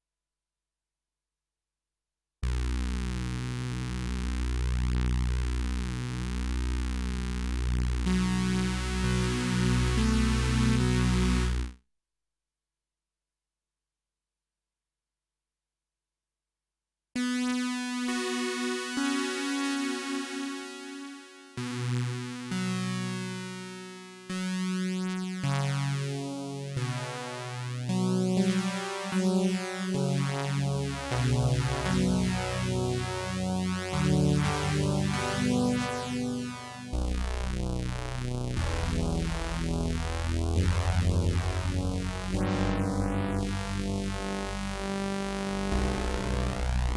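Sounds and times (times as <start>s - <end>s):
buzzy low synthesizer notes: 2.4s - 11.8s, 26.8s - 46.9s.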